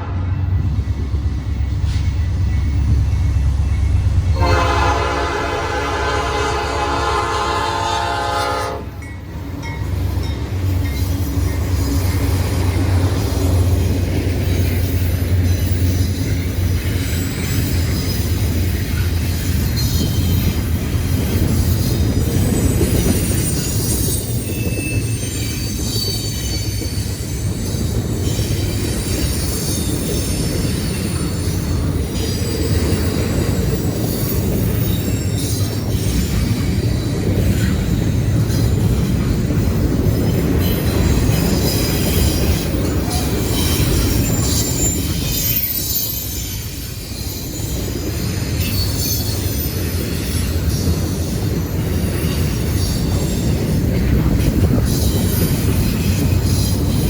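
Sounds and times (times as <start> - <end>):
train wheels rumbling on rail: 0.0 - 57.0
wheel squeals: 14.4 - 39.3, 40.1 - 57.0.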